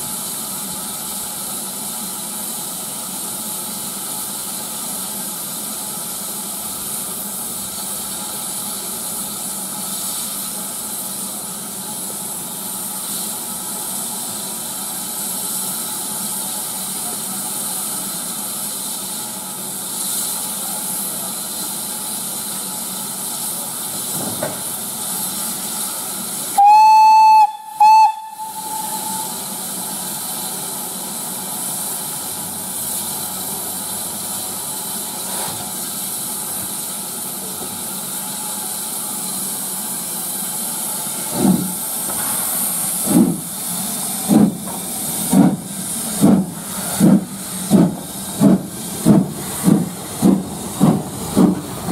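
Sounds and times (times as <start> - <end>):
steam hissing: 0.0 - 51.9
steam locomotive whistle: 26.6 - 29.6
locomotive exhaust chuffs: 32.7 - 51.9.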